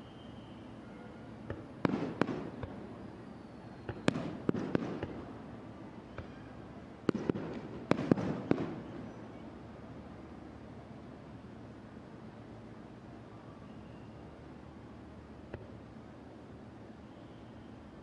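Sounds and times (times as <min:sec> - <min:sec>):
fireworks rumble and crackle: 0:00.2 - 0:18.0
fireworks bangs: 0:01.5 - 0:02.9, 0:03.9 - 0:05.3, 0:07.1 - 0:09.2.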